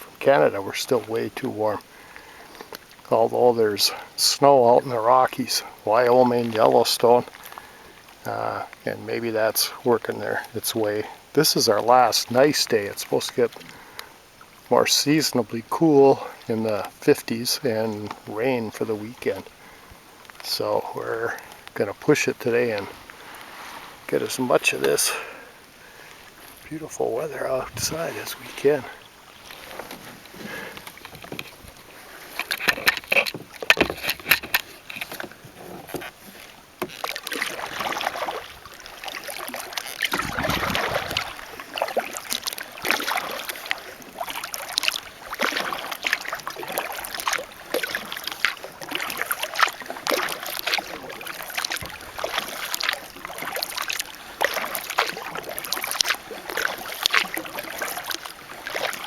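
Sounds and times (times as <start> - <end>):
kayak paddle splashing: 0.0 - 59.0
water dripping and trickling: 36.4 - 59.0.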